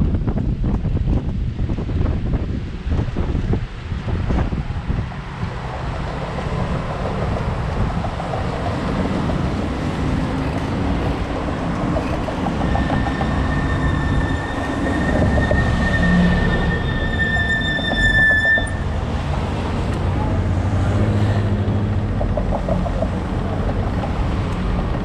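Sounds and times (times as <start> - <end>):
wind buffeting microphone: 0.0 - 17.6
tram rumbling past on rails: 0.0 - 25.0
high-pitched wheel squeal: 11.6 - 19.3.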